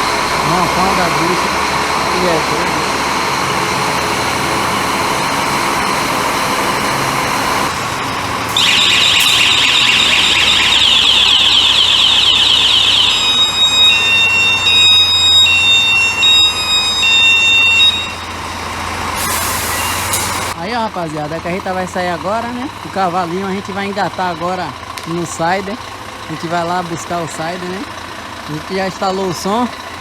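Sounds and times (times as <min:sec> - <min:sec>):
truck engine running: 0:00.0 - 0:30.0
electronic alarm warbling and beeping: 0:08.5 - 0:20.2.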